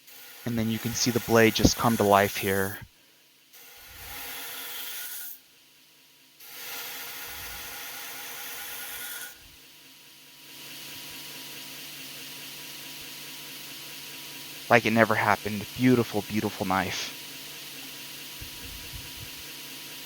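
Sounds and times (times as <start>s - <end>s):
knife grinding on sharpener: 3.7s - 5.4s, 6.5s - 9.4s.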